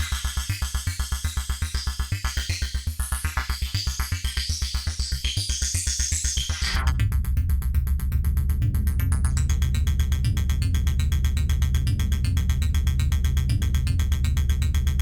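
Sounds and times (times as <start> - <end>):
buzzing bass tone: 6.6 - 15.0
synth bass line: 6.8 - 15.0.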